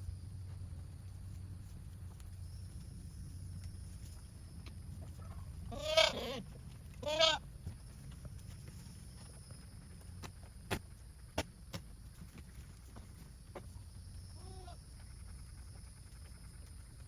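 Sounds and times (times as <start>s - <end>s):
goat bleating: 5.7s - 7.4s, 14.4s - 14.8s.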